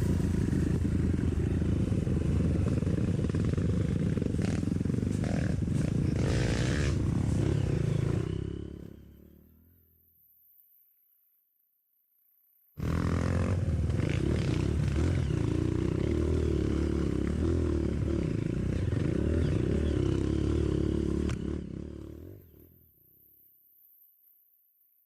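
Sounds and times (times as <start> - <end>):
motorcycle engine running: 0.0 - 9.4, 12.8 - 22.5.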